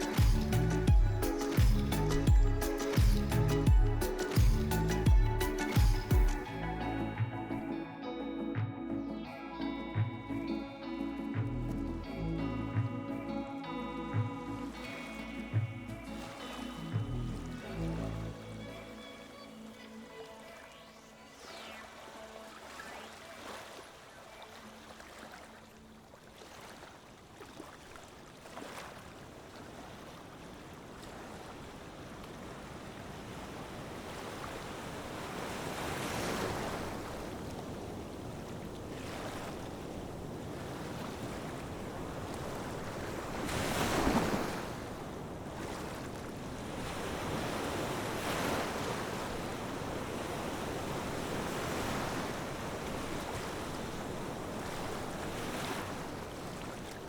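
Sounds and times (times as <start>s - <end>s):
sea waves washing in: 0.0s - 7.9s, 10.6s - 57.0s
wind: 0.0s - 57.0s.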